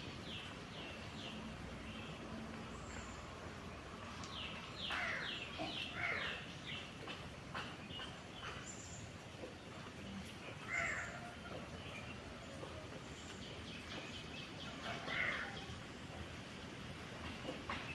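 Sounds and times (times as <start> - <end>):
birds chirping: 0.0 - 17.9
steady background noise: 0.0 - 17.9
harsh bird calls: 4.4 - 9.1, 10.2 - 16.0.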